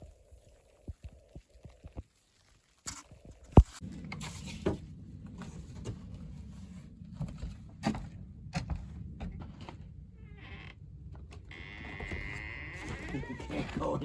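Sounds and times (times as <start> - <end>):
low mechanical rumble: 3.8 - 14.0.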